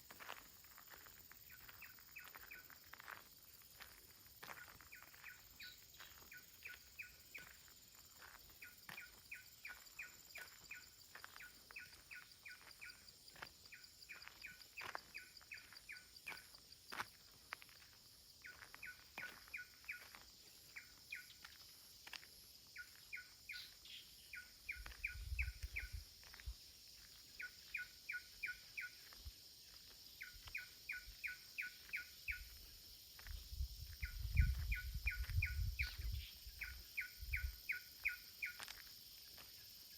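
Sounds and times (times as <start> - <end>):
footsteps on a path: 0.0 - 39.9
small songbird chirping: 0.0 - 39.9
wind rumble on microphone: 24.8 - 26.6, 33.3 - 37.6.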